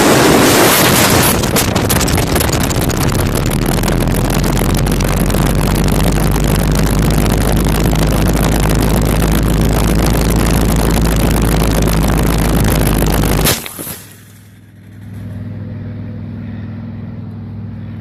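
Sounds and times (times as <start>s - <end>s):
wind rushing over microphone: 0.0s - 13.4s
steady low hum: 0.0s - 18.0s.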